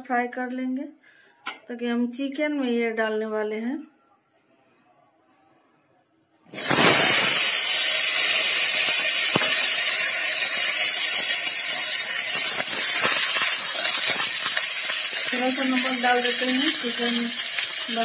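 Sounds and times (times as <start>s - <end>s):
potatoes frying in hot oil: 6.6s - 18.0s.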